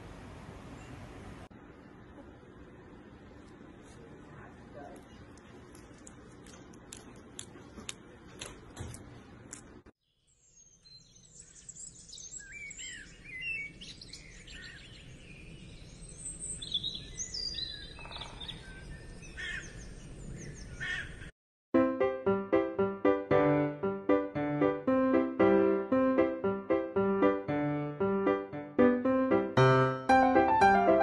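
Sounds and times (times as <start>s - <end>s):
small birds chirping: 10.0s - 21.3s.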